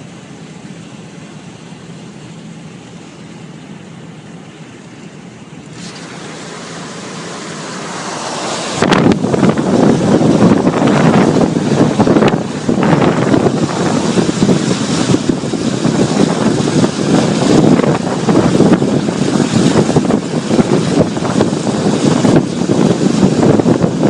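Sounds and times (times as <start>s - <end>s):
vehicles on wet road: 0.0s - 24.0s
wind buffeting microphone: 5.8s - 24.0s.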